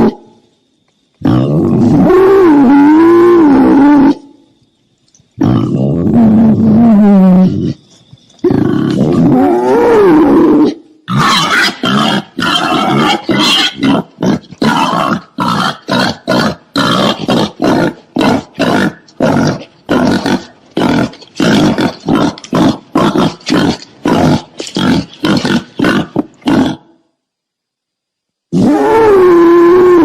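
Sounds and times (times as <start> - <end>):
wild boar wavering call: 1.2 - 4.4, 28.5 - 30.0.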